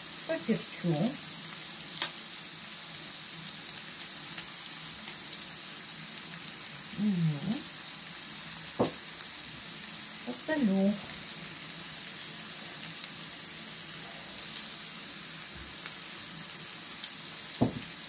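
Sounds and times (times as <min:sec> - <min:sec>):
pork and onion sizzling in a pan: 0:00.0 - 0:18.0
sharp knock: 0:17.6 - 0:17.8.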